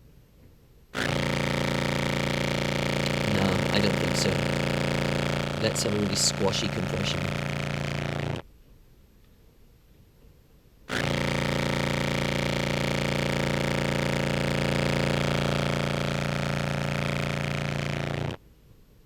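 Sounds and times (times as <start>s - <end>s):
distorted contrabass clarinet note: 1.0s - 8.4s, 10.9s - 18.4s.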